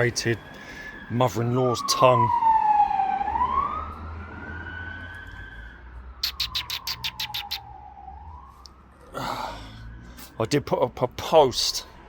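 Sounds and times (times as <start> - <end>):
siren wailing: 0.0 - 10.6
sharp bird chirps: 6.2 - 7.7.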